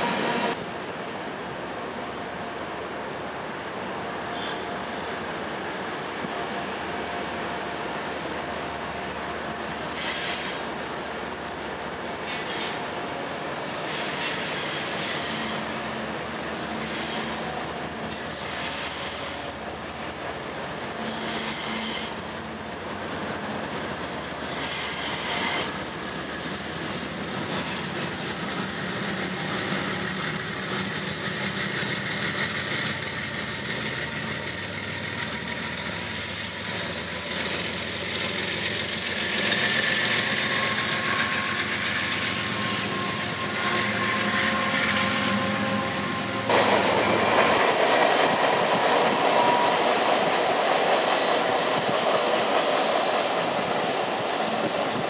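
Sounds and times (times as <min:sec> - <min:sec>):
diesel locomotives running: 0:00.0 - 0:55.0
train cars rattling: 0:04.2 - 0:55.0
wheels squealing: 0:16.5 - 0:19.6, 0:37.2 - 0:53.1.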